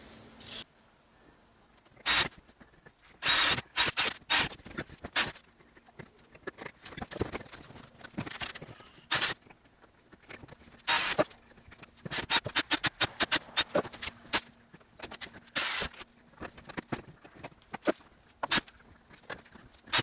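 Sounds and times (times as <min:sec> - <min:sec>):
faint steady hum: 0:00.0 - 0:03.2
rasping bursts: 0:02.0 - 0:02.4, 0:03.2 - 0:05.4, 0:10.9 - 0:16.5, 0:17.8 - 0:20.0.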